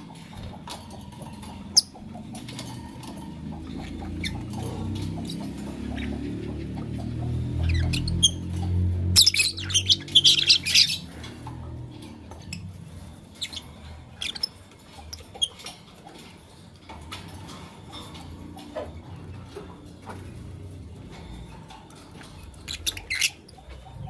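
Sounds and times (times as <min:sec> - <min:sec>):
lovebirds chirping and squawking: 0:00.0 - 0:24.0.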